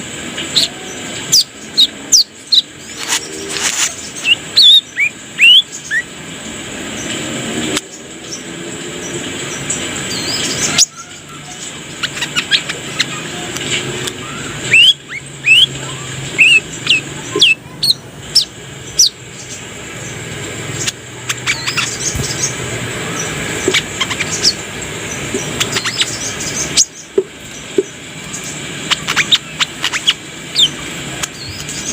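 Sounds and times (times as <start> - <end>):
steady background hum: 0.0 - 31.9
bird chirping and whistling: 0.5 - 6.1, 10.1 - 19.2, 20.8 - 27.1, 28.4 - 31.9.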